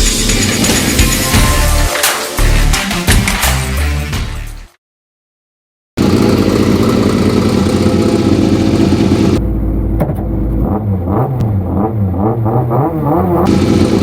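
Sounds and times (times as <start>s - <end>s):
rally car engine at high revs: 10.5s - 14.0s.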